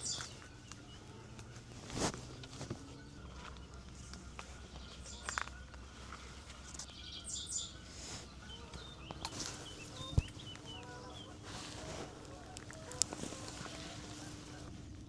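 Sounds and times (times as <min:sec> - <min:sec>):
low outdoor rumble: 0:00.0 - 0:15.0
small birds chirping: 0:00.0 - 0:15.0
brief rustles: 0:08.0 - 0:15.0.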